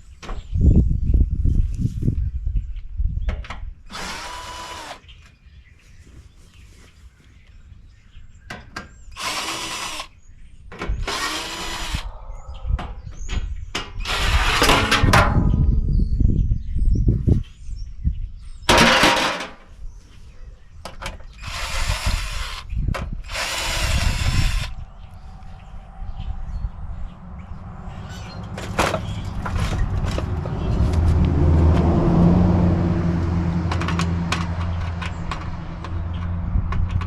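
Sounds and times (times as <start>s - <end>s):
power drill whining: 3.9s - 5.0s, 9.1s - 10.1s, 11.0s - 12.1s, 14.0s - 14.7s, 21.4s - 24.8s
metal clanks and rattles: 12.8s - 15.7s, 18.7s - 19.7s, 28.4s - 31.1s, 33.6s - 37.0s.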